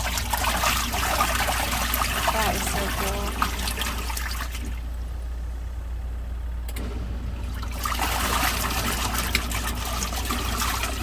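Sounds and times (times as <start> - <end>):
water churning in wash tub: 0.0 - 5.2, 6.8 - 11.0
washing machine motor hum: 0.0 - 11.0.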